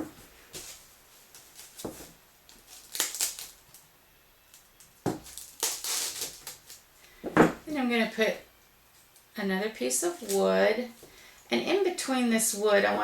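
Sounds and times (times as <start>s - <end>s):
dry leaves rustling: 0.4s - 3.8s.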